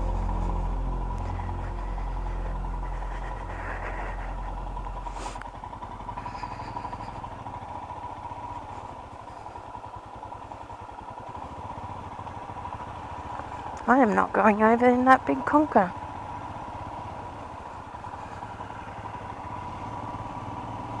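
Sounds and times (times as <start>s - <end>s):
steady thin tone: 0.0s - 7.3s
motorcycle engine idling: 0.0s - 21.0s.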